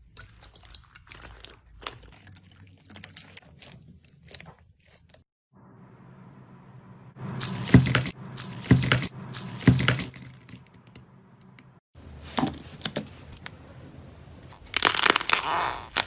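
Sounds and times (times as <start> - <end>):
slime squelching: 0.0 - 5.2, 7.2 - 13.4.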